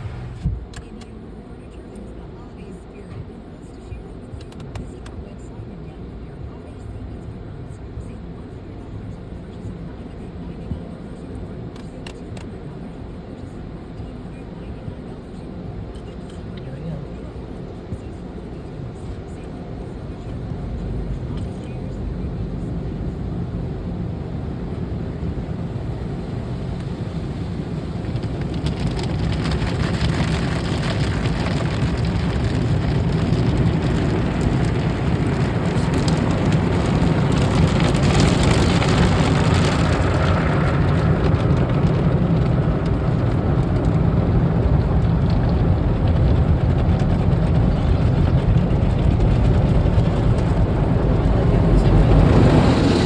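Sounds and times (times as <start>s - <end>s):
car wash water spray: 0.0s - 1.0s, 15.8s - 53.0s
car wash machinery: 0.0s - 10.0s, 15.0s - 53.0s.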